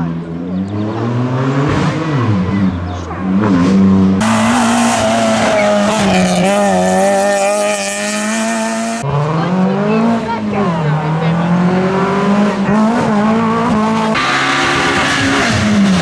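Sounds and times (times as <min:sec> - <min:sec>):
rally car engine revving: 0:00.0 - 0:16.0
tyres hissing on road: 0:04.2 - 0:09.0.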